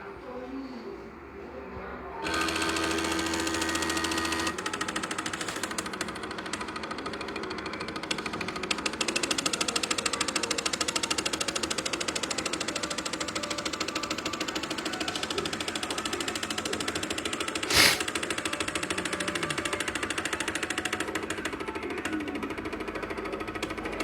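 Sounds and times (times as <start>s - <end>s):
stepper motors buzzing: 17.1s - 18.1s
short loud hiss: 17.7s - 18.0s.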